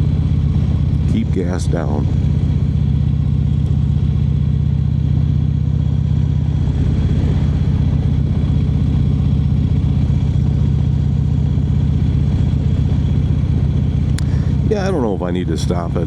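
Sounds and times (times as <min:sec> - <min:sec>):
motorcycle engine rumbling: 0:00.0 - 0:16.0.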